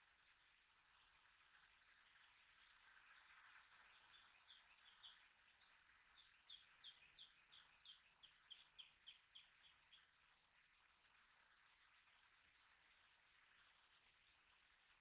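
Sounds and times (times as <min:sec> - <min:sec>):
bird chirping: 0:03.8 - 0:10.1.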